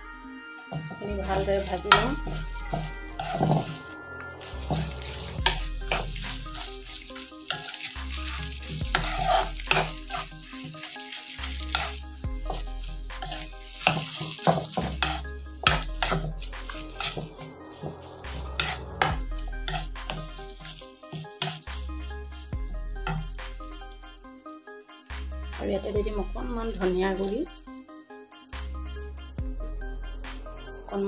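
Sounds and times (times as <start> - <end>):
steel spoon scraping a pan: 0.7 - 24.1
food sizzling in oil: 0.7 - 28.1.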